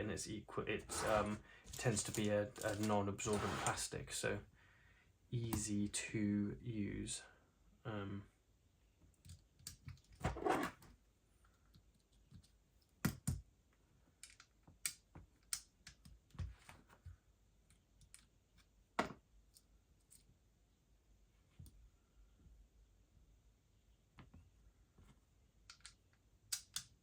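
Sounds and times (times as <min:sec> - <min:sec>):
small parts and tools clicking: 0:00.9 - 0:03.0, 0:14.2 - 0:16.4, 0:17.6 - 0:18.7, 0:25.6 - 0:27.0.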